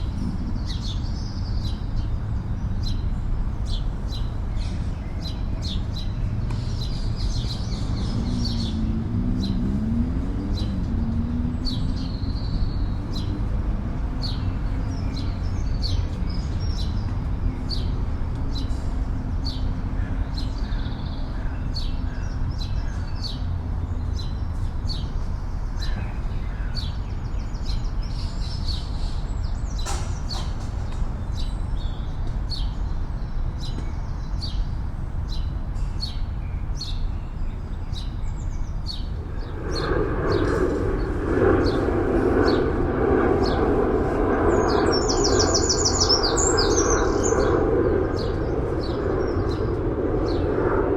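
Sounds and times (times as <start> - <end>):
low engine drone: 0.0 - 26.4, 38.0 - 50.9
small birds chirping: 0.0 - 50.8
city traffic rumble: 0.0 - 50.9.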